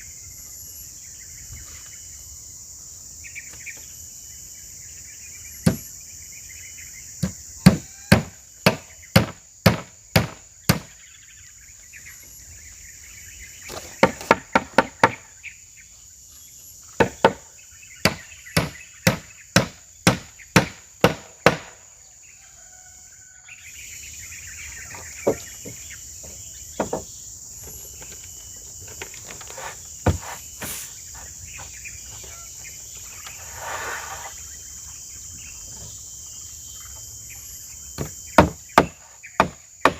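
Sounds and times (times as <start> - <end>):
insects chorus: 0.0 - 39.9
hammer striking nails: 7.6 - 10.8, 38.0 - 39.9.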